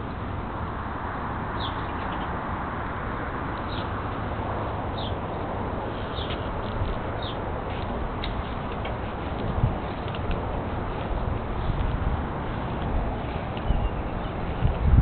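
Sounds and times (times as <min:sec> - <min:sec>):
steady low rumble and hiss: 0:00.0 - 0:15.0
high bird chirps: 0:13.2 - 0:14.6.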